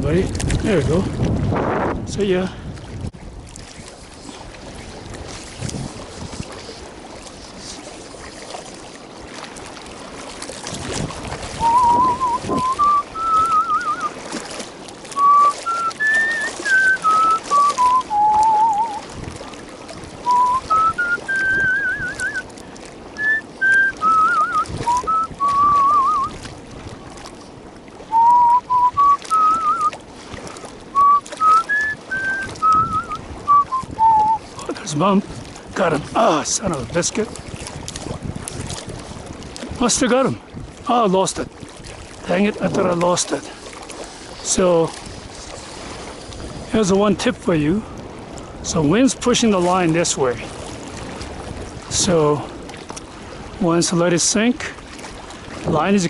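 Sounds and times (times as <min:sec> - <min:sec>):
water noise: 0:00.0 - 0:56.0
wind: 0:00.0 - 0:56.0
man whistling a slow melody: 0:11.6 - 0:14.2, 0:15.2 - 0:19.0, 0:20.2 - 0:22.4, 0:23.1 - 0:26.4, 0:28.1 - 0:30.0, 0:30.9 - 0:34.5.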